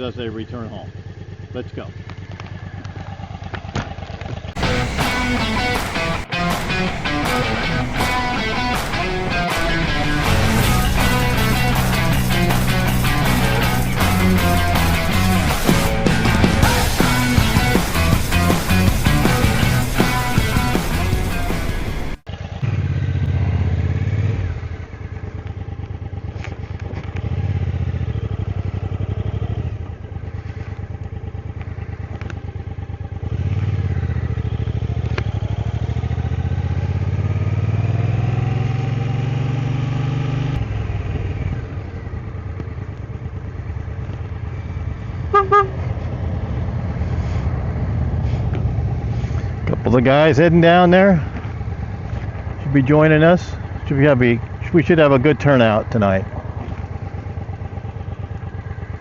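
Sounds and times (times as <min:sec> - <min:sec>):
motorcycle engine accelerating: 0:00.0 - 0:59.0
horn beeping: 0:45.3 - 0:45.9.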